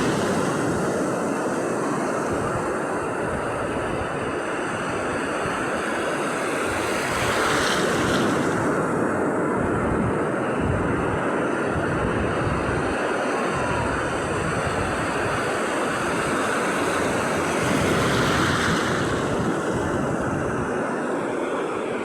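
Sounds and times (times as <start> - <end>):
surf washing on shore: 0.0 - 22.0
wave breaking: 5.7 - 9.0, 13.0 - 22.0.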